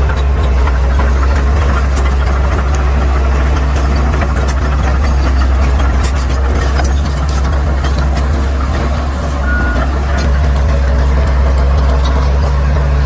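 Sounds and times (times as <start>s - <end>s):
bulldozer diesel engine drone: 0.0s - 13.0s.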